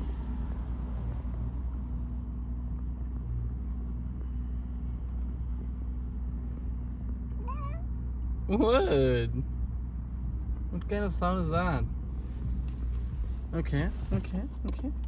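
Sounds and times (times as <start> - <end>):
constant low rumble: 0.0 - 15.0
cat low droning sound: 3.1 - 8.3.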